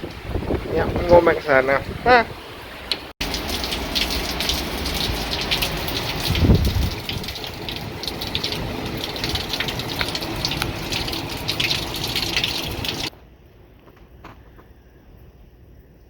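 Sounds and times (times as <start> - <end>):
strong wind rushing: 0.0 - 2.8, 4.8 - 13.1
heavy rain patter: 0.0 - 13.1.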